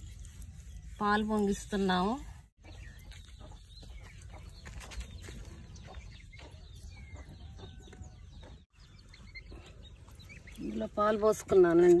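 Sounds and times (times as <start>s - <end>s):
birds chirping and calling: 2.6s - 12.0s.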